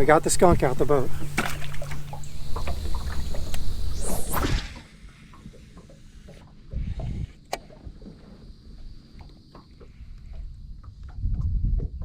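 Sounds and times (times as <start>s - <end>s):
low rumble: 0.0s - 5.8s
fishing rod swishing: 0.4s - 4.8s.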